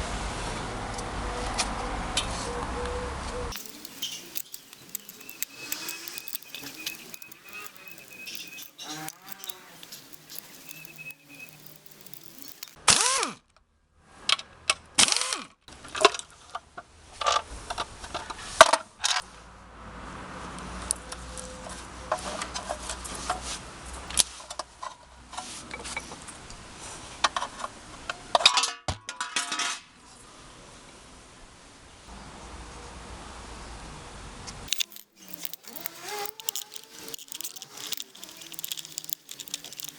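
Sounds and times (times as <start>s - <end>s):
metal tools clinking and clanking: 3.5s - 12.8s, 34.7s - 39.9s.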